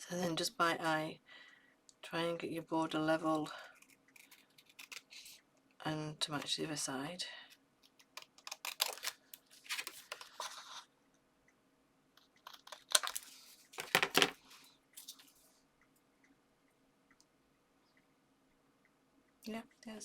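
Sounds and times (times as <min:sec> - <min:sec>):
paper and card rustling: 0:08.4 - 0:10.9, 0:12.4 - 0:15.6.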